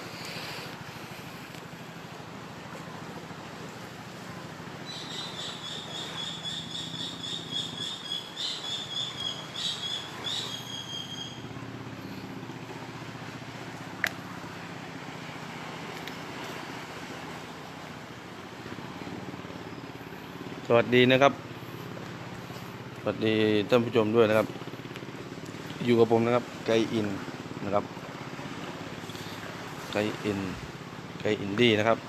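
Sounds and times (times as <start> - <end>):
low outdoor rumble: 0.0 - 32.0
bird chirping: 4.8 - 11.4.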